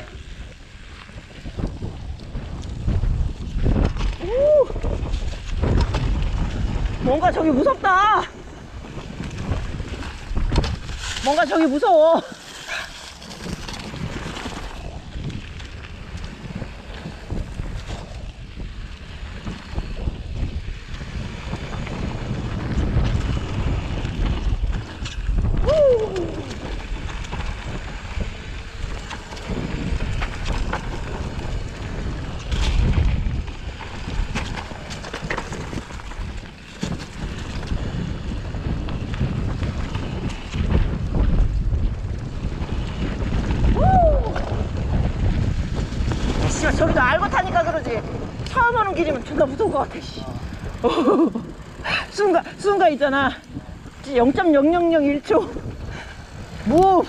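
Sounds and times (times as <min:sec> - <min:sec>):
bike rolling on rough trail: 0:00.0 - 0:57.0
wind buffeting microphone: 0:00.0 - 0:57.0.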